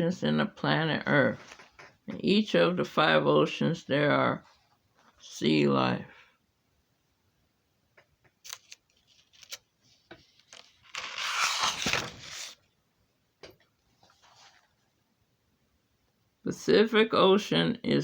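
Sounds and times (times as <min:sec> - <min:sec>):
rustling scraping noise: 0:13.9 - 0:14.8.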